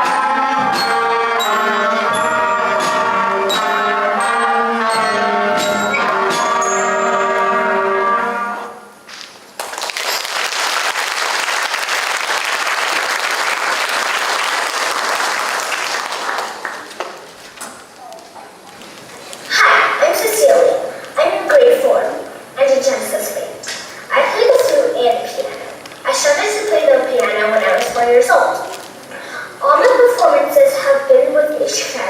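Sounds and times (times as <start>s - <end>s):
concert band playing: 0.0s - 8.9s
audience applauding: 9.5s - 17.5s.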